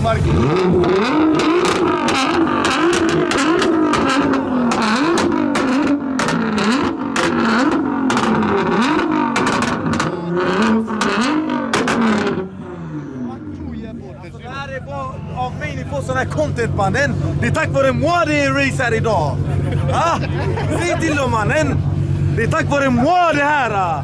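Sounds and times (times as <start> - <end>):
exhaust pops and crackles: 0.0 - 12.5
car engine revving: 0.0 - 24.0.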